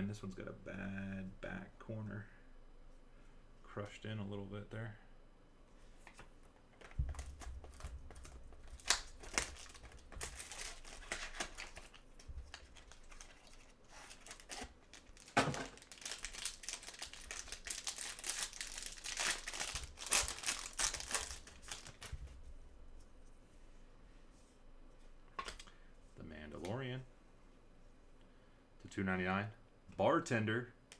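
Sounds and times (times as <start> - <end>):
card wrappers crinkling and tearing: 6.8 - 22.2.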